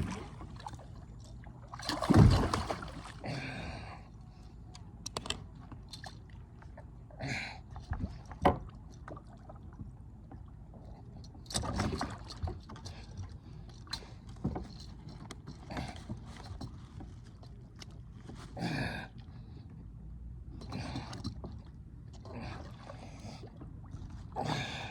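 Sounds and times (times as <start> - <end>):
water splashes: 0.0 - 3.4.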